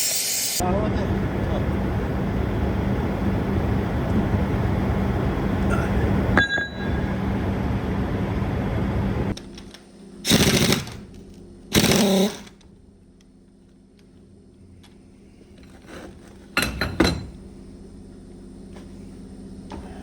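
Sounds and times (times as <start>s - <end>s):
loud noise with low hum: 0.6s - 20.0s
pneumatic impact wrench rattling: 10.3s - 11.0s, 11.7s - 12.6s.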